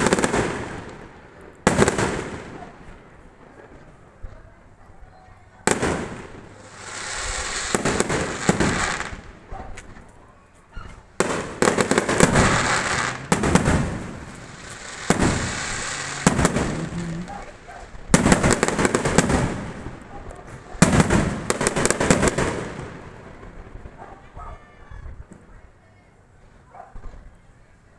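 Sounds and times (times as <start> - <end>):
fireworks bangs: 0.0 - 3.9, 5.6 - 10.1, 10.8 - 24.4
fireworks crackling: 0.0 - 4.3, 5.6 - 10.2, 11.0 - 24.4.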